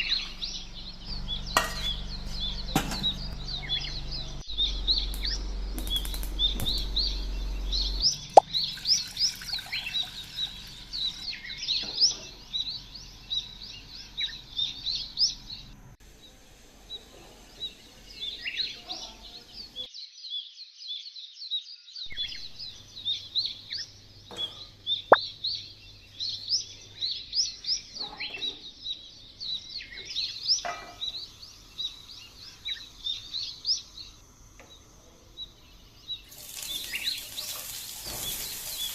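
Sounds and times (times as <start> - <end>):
small birds chirping: 0.0 - 38.9
sharp clicks: 5.0 - 7.1.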